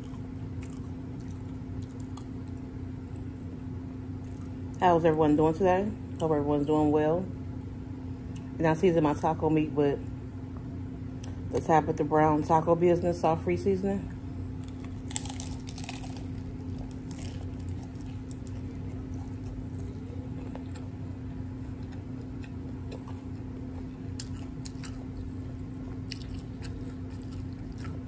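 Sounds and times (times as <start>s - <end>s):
crunching taco shell: 0.0s - 3.3s, 14.5s - 28.0s
steady low hum: 0.0s - 28.0s.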